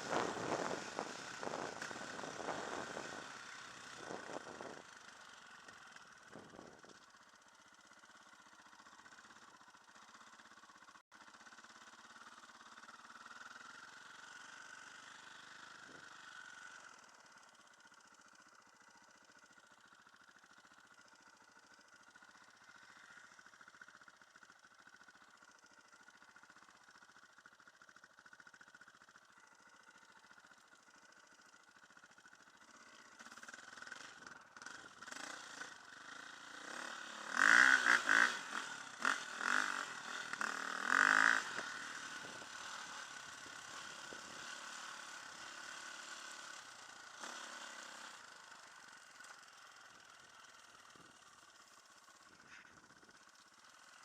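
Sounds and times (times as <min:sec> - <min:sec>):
dirt bike engine revving: 0:00.0 - 0:05.7, 0:32.6 - 0:48.4.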